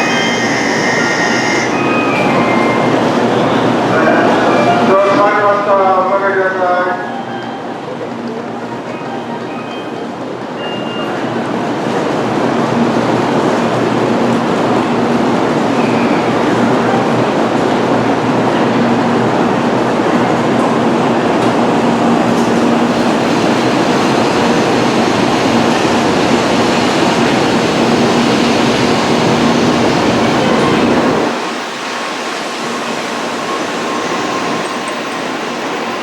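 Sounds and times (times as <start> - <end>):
train rolling rush: 0.0 - 36.0.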